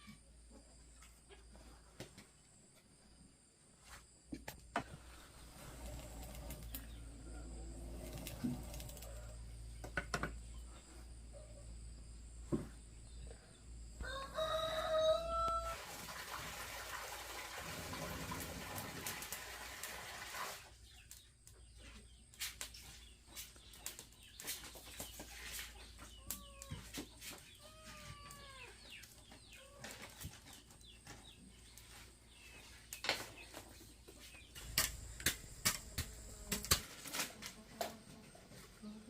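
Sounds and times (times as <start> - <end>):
birds chirping: 20.9 - 36.5.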